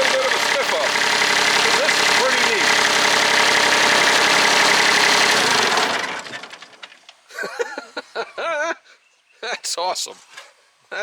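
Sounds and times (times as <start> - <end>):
litter vacuum engine and fan: 0.0 - 7.0.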